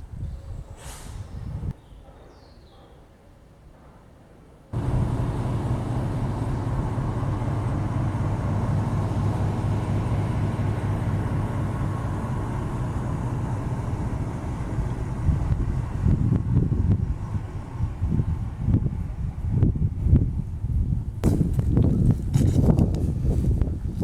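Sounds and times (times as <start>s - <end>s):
train rumbling: 4.8s - 23.9s.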